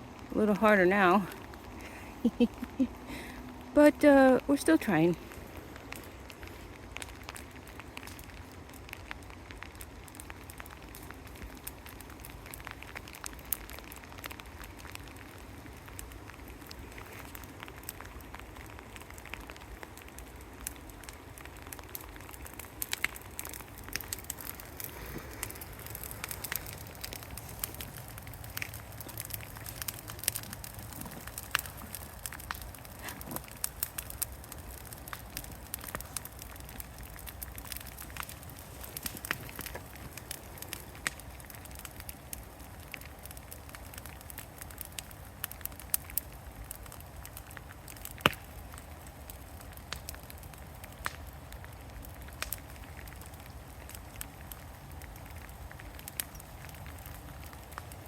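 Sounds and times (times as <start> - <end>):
brush fire crackling and popping: 0.0 - 58.0
rain: 0.0 - 58.0.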